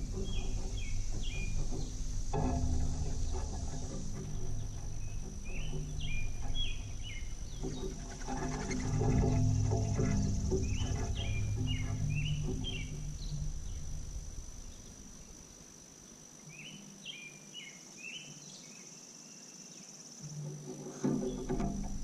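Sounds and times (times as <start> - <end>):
low hum: 0.0 - 15.6, 20.3 - 22.0
small bird chirping: 0.0 - 15.6
insect trill: 0.0 - 22.0.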